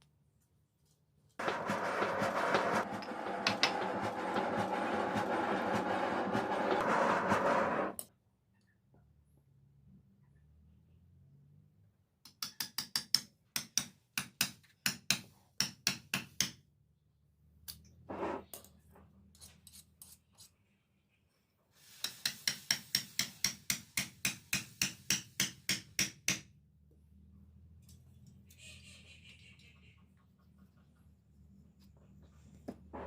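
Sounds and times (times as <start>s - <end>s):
metal scrape: 1.4s - 8.0s.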